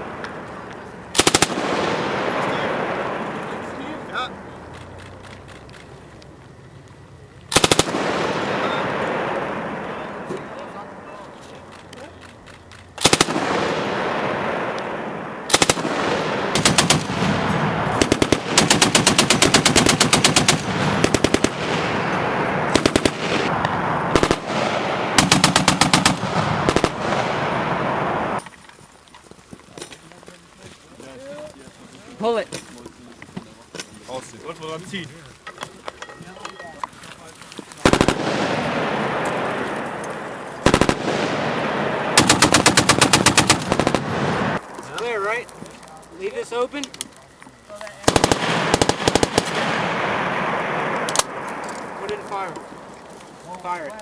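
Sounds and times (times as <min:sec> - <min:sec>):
continuous din of gunfire: 0:00.0 - 0:05.9, 0:07.5 - 0:28.4, 0:37.8 - 0:45.6, 0:47.9 - 0:54.0
machine gun bursts: 0:01.1 - 0:02.6, 0:07.5 - 0:08.9, 0:11.7 - 0:14.1, 0:15.5 - 0:23.5, 0:24.2 - 0:27.5, 0:37.8 - 0:38.7, 0:40.6 - 0:41.2, 0:41.8 - 0:44.6, 0:48.0 - 0:50.0.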